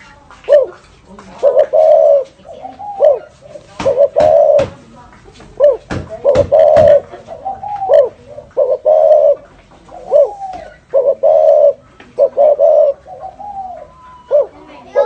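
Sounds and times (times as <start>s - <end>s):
dove cooing: 0.4s - 15.0s
sharp knocks: 3.8s - 4.9s, 5.8s - 7.0s.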